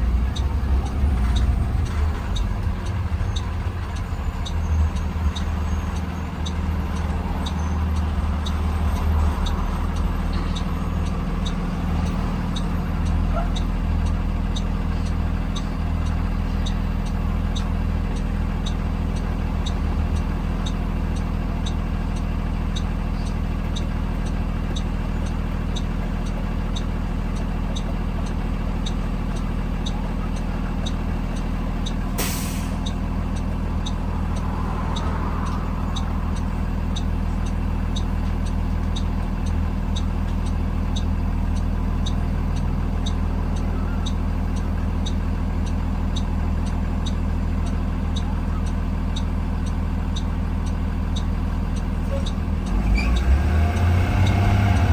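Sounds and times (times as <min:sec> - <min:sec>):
bus engine running: 0:00.0 - 0:54.9
regular ticking: 0:00.0 - 0:54.9
air brake hiss: 0:32.2 - 0:32.9.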